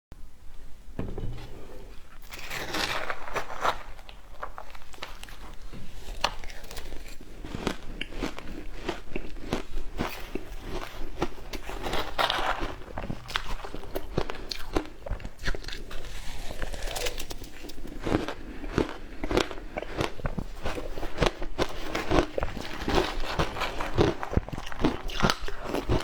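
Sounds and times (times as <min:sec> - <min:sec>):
person crunching ice: 0:02.2 - 0:14.9.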